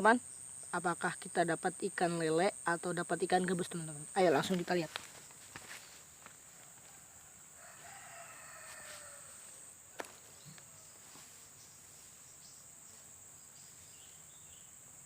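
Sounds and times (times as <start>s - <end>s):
rooster crowing: 6.5s - 9.7s.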